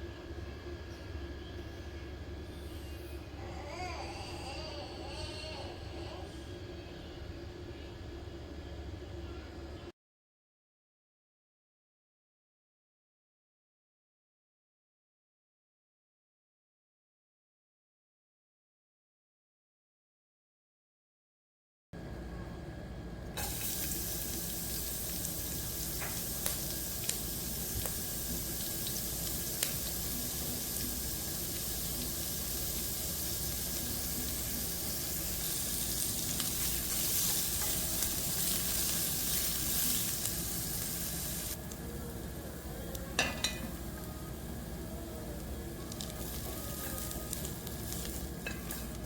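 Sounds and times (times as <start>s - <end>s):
food sizzling in oil: 23.4s - 42.4s, 43.1s - 49.0s.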